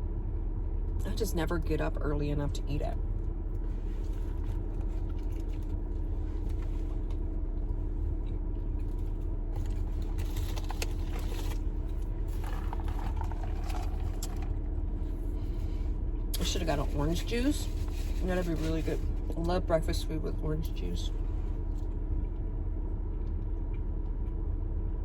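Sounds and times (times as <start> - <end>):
car idling from inside: 0.1 - 25.0
food clicks and rustles: 3.6 - 15.6.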